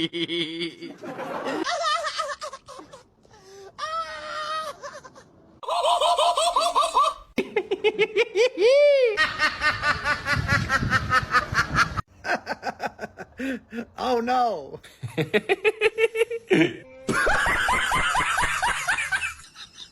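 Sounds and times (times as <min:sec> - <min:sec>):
people laughing: 0:00.0 - 0:03.1, 0:15.0 - 0:19.9.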